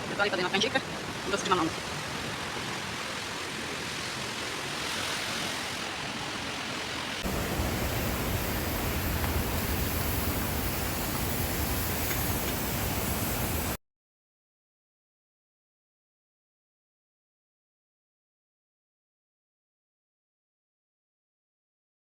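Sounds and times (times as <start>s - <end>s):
river water rushing over stones: 0.0s - 13.8s.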